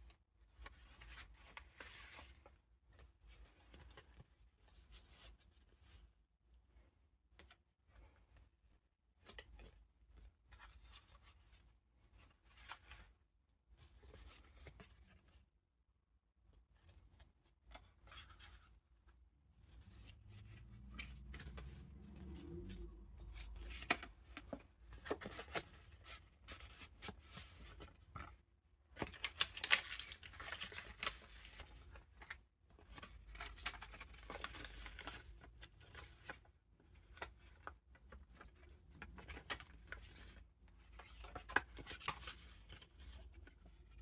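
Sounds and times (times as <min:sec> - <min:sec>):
paper pages rustling and crinkling: 0:00.6 - 0:05.3, 0:16.8 - 0:18.8, 0:19.6 - 0:44.0.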